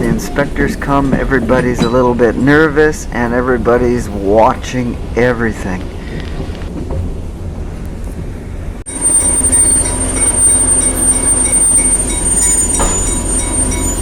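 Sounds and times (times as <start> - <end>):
train rolling on track: 0.0 - 14.0
high wheel squeal: 8.9 - 14.0.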